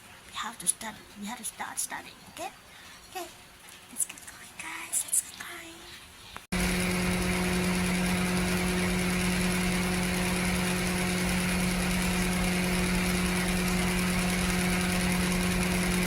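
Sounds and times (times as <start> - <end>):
small motor humming: 6.5 - 16.0.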